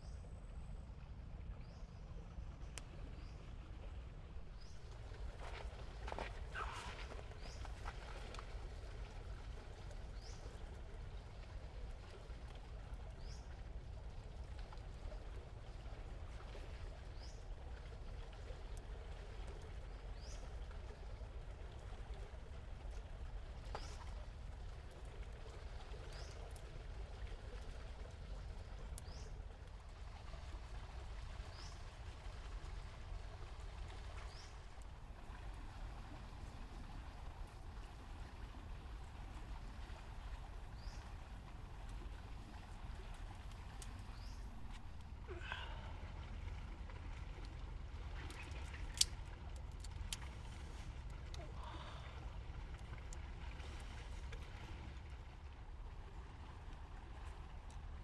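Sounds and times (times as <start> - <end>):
bird rising call: 6.5 - 7.0
flowing water rushing: 29.6 - 58.0.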